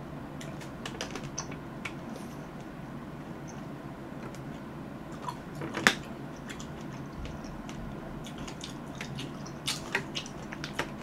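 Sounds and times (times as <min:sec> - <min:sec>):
wet chewing clicks: 0:04.3 - 0:11.0.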